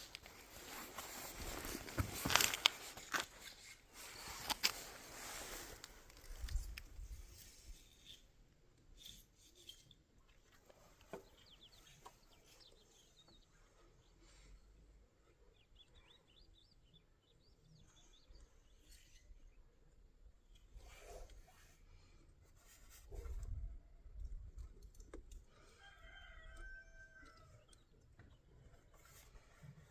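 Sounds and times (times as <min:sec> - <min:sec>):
faint small-bird chirps: 0:15.5 - 0:19.6.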